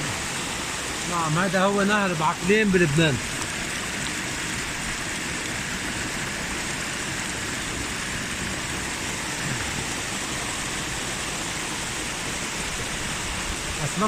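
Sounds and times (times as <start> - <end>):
fast-flowing river water: 0.0 - 14.0.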